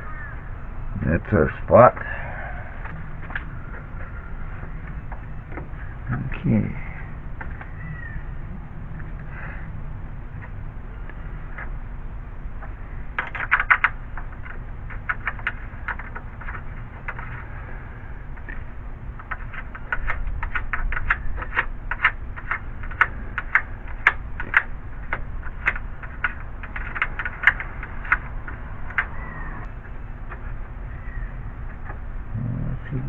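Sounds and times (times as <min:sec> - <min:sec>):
hand tools clicking and tapping metal: 0:18.3 - 0:30.6.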